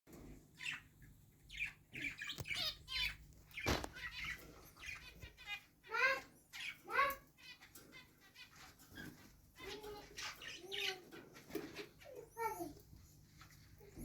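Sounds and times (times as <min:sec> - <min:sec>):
parrots chirping and chattering: 0:00.1 - 0:14.0.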